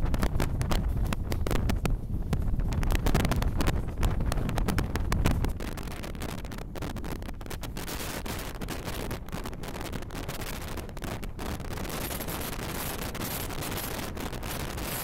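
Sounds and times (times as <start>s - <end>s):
train rumbling: 0.0s - 6.7s
wind buffeting the microphone: 0.0s - 15.0s.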